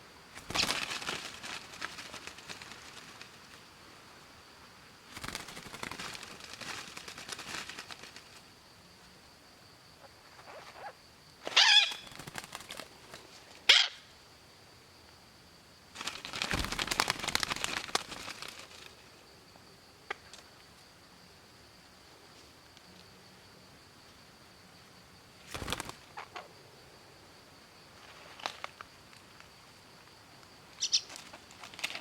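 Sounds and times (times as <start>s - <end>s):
parrot squawks: 11.6s - 12.0s.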